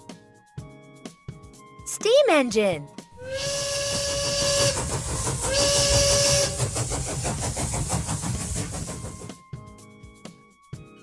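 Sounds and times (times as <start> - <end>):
steam whistle blast: 3.2 - 7.0
steam hissing: 3.2 - 9.4
steam locomotive chuffing: 3.2 - 9.4.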